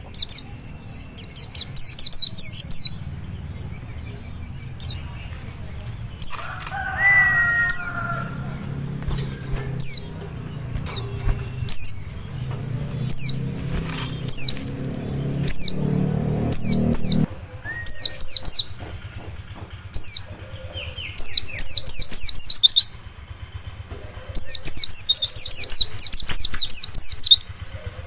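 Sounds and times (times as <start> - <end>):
steady low hum: 0.0 - 21.4
bird chirping: 0.0 - 27.7
lower warbling bird call: 6.2 - 10.3, 13.0 - 18.7.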